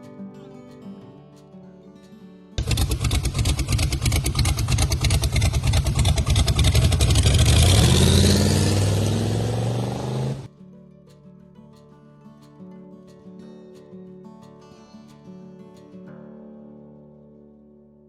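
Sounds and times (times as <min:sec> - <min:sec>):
car engine revving: 0:02.6 - 0:10.5.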